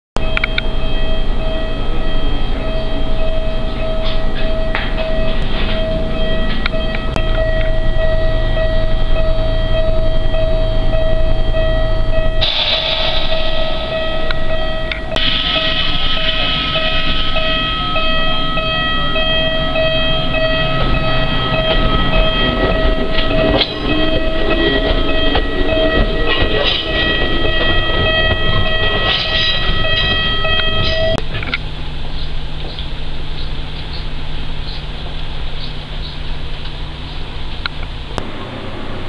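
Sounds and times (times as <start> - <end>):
pulsing ringing warning signal: 0.2 - 31.2
electric railcar motors and wheels: 0.2 - 39.0.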